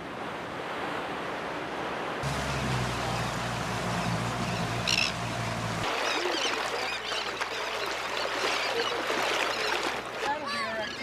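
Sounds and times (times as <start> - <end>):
low motor hum: 2.2 - 5.9
seabird colony calling: 2.2 - 11.0
bird call: 2.4 - 11.0.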